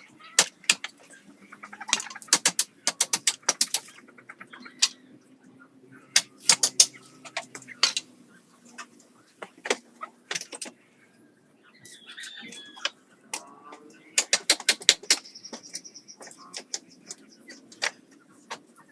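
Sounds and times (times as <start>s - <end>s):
sharp taps and knocks: 0.4s - 1.1s, 1.9s - 3.9s, 6.2s - 8.1s, 9.4s - 10.7s, 14.2s - 18.6s.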